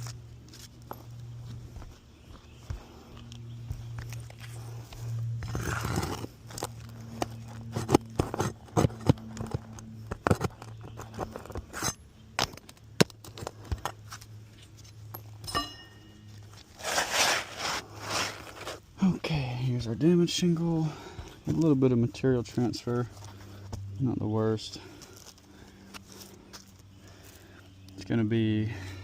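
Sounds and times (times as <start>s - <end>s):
footsteps on shingle roof: 0.0s - 11.8s
steady low hum: 0.0s - 29.0s.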